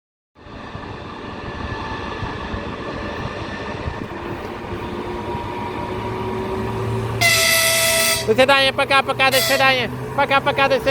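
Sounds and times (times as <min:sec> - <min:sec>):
electric locomotive rumbling: 0:00.4 - 0:10.9.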